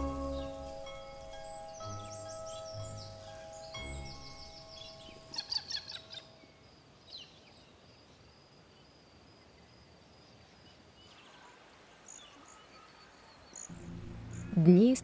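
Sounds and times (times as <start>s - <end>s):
birds chirping: 0.0s - 6.6s, 12.0s - 15.0s
low hiss: 0.0s - 15.0s.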